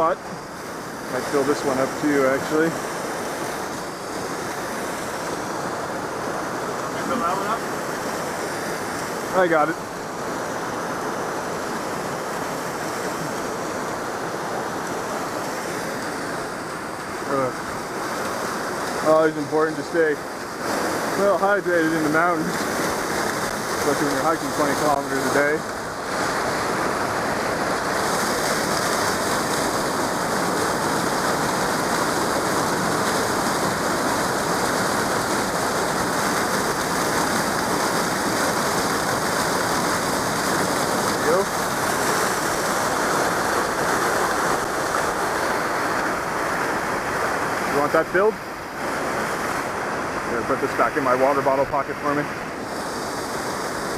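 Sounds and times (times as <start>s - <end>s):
river water rushing: 0.0s - 53.9s.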